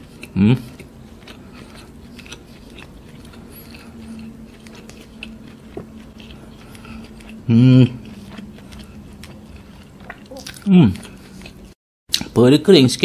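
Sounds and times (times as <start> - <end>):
person chewing: 0.0 - 12.3.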